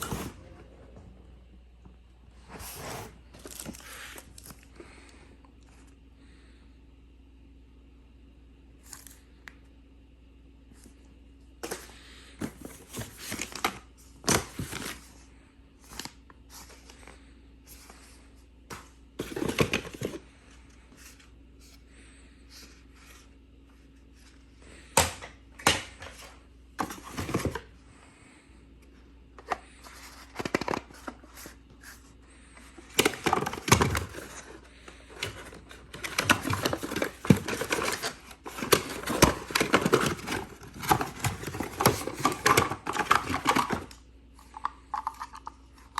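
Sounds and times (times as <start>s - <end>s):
packaging crinkling: 32.9s - 45.5s.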